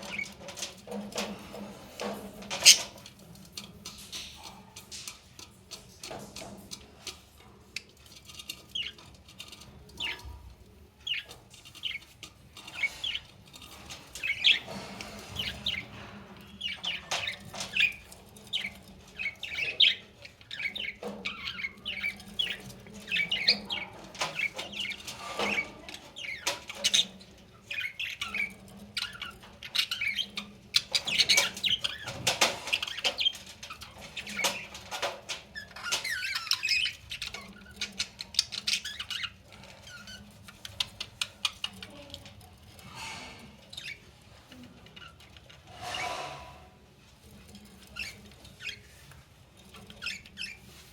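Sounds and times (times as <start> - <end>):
budgerigars chirping and chattering: 0.0 - 50.9.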